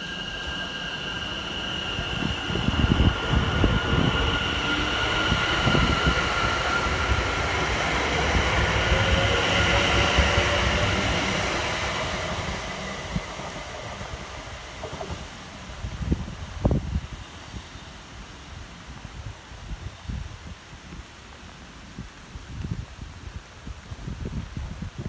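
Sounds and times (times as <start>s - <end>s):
high whine: 0.0s - 15.0s
train wheels rumbling: 0.0s - 16.5s.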